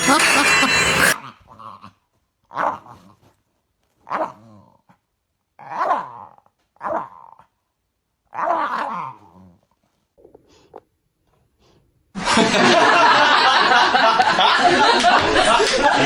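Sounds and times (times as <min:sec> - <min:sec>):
loud dense sound: 0:00.0 - 0:01.2
dog growling barks: 0:01.1 - 0:03.2, 0:04.0 - 0:05.0, 0:05.6 - 0:07.6, 0:08.3 - 0:09.6.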